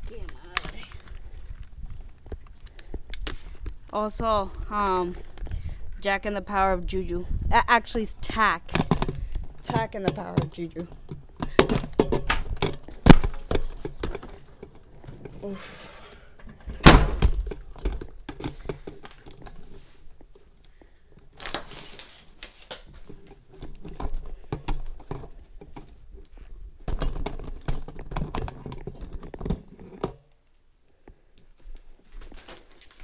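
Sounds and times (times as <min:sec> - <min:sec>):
rustling crinkling handling noise: 0:17.4 - 0:30.0, 0:31.4 - 0:33.0.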